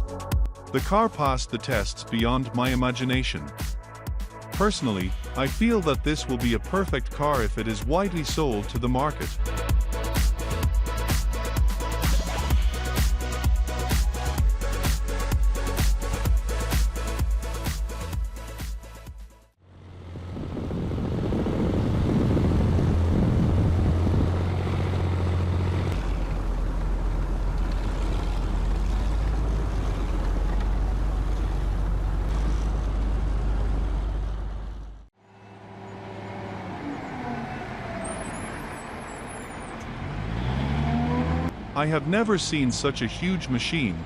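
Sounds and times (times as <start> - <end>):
heavy vehicle engine droning: 19.6 - 44.0
quieter engine: 19.6 - 44.0
high squeal: 35.2 - 39.8.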